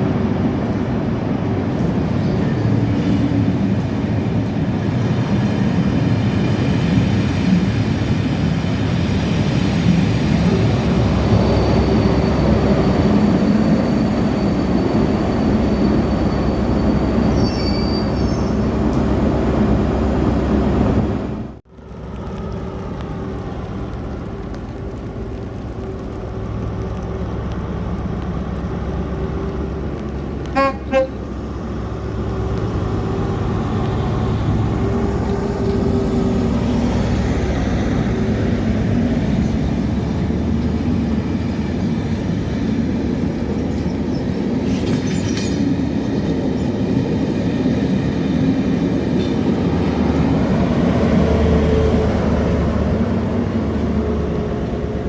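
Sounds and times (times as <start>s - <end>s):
train rumbling past on rails: 0.0s - 55.0s
train horn toots: 30.5s - 31.3s.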